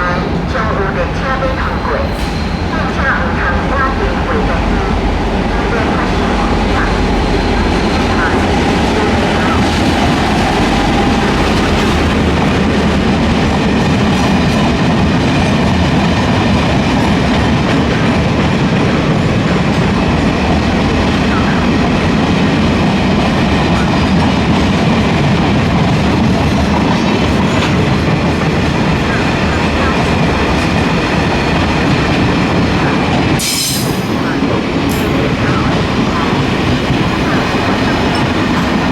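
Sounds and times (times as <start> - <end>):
freight train wagons clattering: 28.5 - 38.9.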